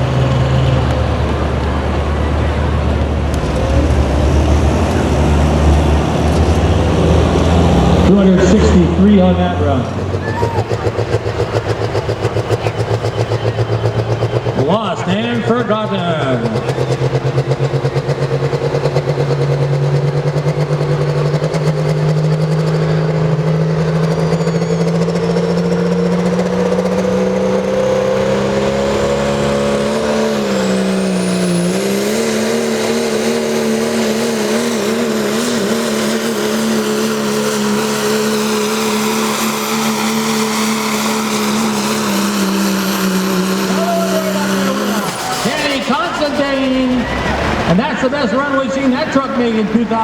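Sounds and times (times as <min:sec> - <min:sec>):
diesel engine at high revs: 0:00.0 - 0:50.0
faint high whistle: 0:23.9 - 0:25.7.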